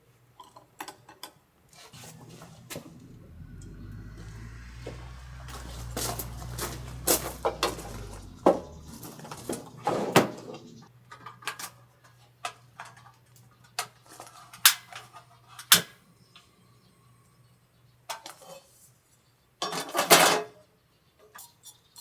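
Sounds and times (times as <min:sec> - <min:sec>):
low hum: 0:02.0 - 0:10.8.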